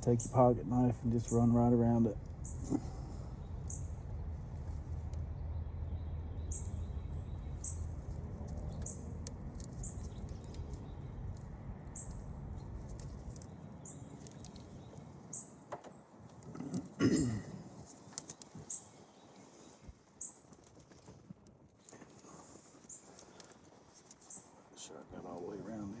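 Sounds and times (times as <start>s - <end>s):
low steady rumble: 0.0s - 15.3s
small bird chirping: 0.0s - 16.9s, 17.7s - 20.7s, 21.8s - 24.6s.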